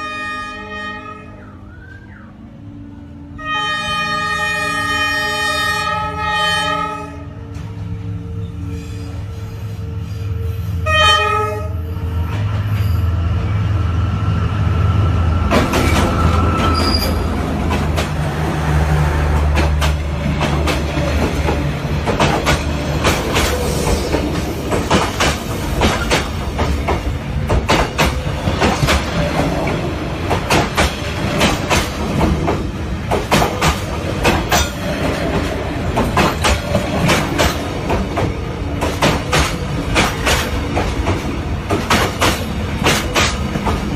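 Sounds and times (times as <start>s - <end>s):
train horn blast: 0.0s - 7.7s, 8.4s - 12.1s
train rumble: 0.0s - 43.9s
wheels clacking over rail joints: 19.3s - 43.9s.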